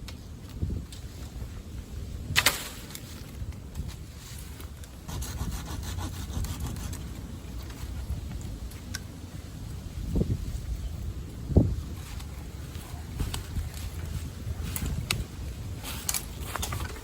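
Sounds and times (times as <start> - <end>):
saw cutting wood: 5.1 - 7.0.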